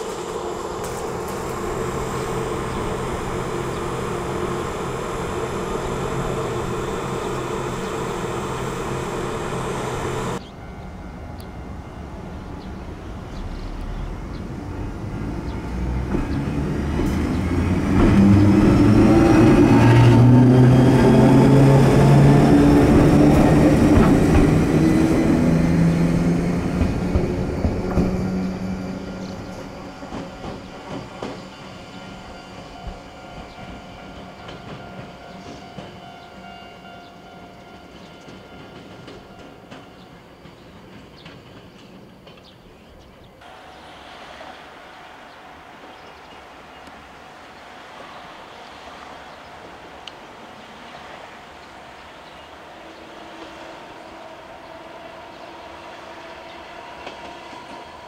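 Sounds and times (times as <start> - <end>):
electric train hum: 0.0 - 58.0
wheels clattering on rails: 15.8 - 43.7.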